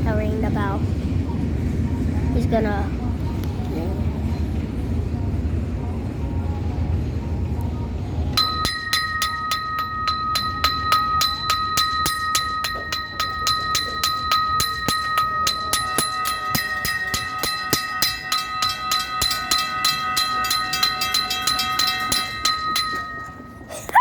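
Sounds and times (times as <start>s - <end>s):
bell rung rapidly: 8.4s - 23.8s.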